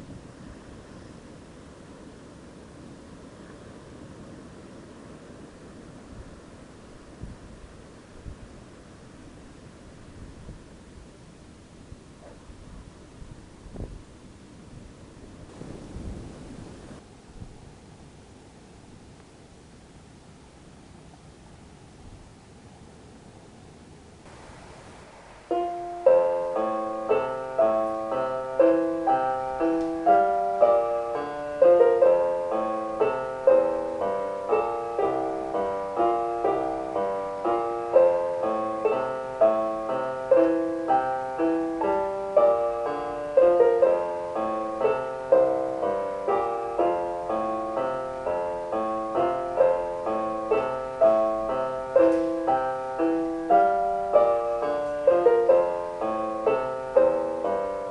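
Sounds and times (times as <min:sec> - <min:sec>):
solo piano music: 0:24.2 - 0:57.9.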